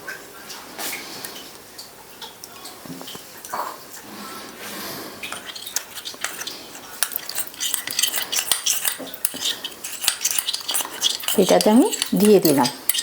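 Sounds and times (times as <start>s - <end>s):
spoon clinking and scraping bowl: 5.3s - 13.0s.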